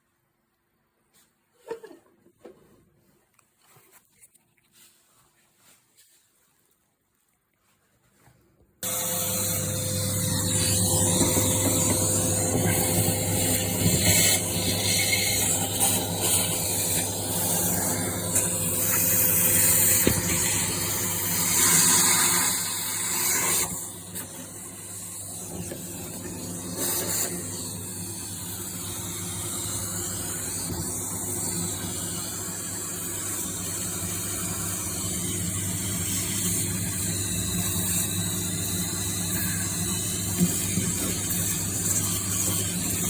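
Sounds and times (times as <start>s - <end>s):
low mechanical hum: 8.8s - 21.6s.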